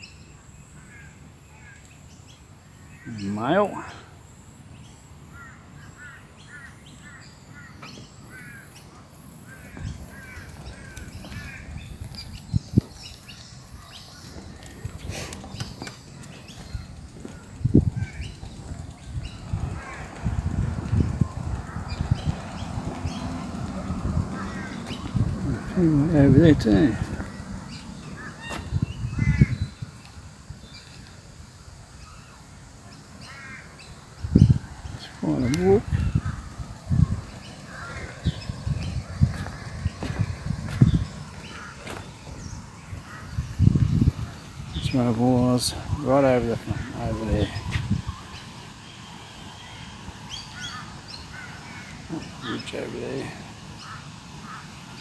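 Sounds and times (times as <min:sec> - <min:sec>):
crow cawing: 0:05.3 - 0:08.8, 0:09.5 - 0:11.8, 0:19.7 - 0:20.9, 0:23.0 - 0:29.7, 0:33.2 - 0:33.9, 0:34.8 - 0:43.8, 0:50.6 - 0:52.6, 0:53.2 - 0:54.8
guinea fowl calling: 0:22.9 - 0:29.7.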